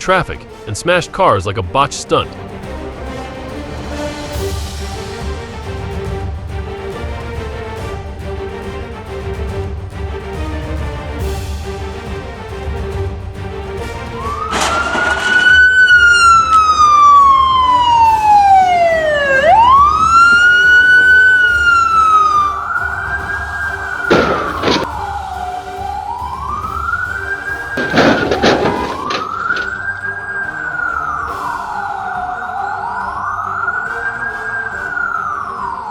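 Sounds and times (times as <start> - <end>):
emergency vehicle siren wailing: 14.1 - 35.9.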